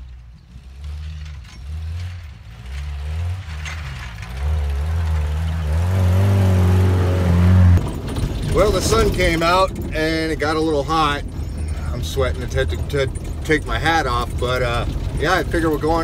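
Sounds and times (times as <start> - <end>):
engine revving: 0.5 - 9.5.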